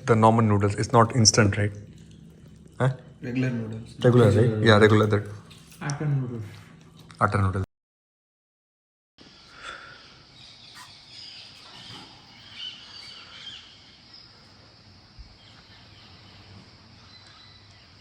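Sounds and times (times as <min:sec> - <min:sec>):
steady high hiss: 0:09.2 - 0:18.0
bird chirps: 0:09.4 - 0:14.6, 0:15.2 - 0:18.0.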